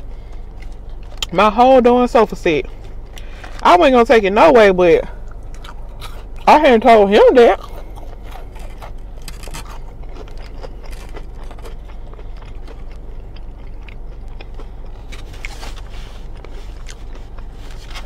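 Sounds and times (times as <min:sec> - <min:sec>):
low hum: 0:00.0 - 0:18.0
chewing fried fish: 0:05.2 - 0:06.5, 0:07.5 - 0:18.0.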